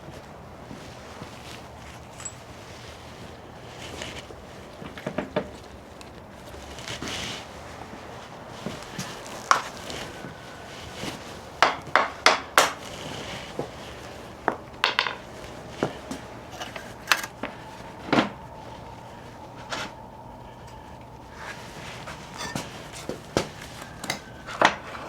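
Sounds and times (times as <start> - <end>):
metal hand tools clanking: 16.5 - 17.4, 22.1 - 24.8.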